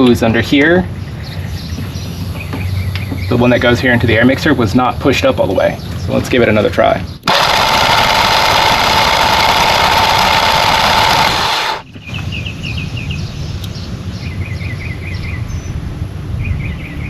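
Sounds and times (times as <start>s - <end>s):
birds chirping: 0.0s - 4.2s
engine cranking by starter: 7.2s - 11.8s.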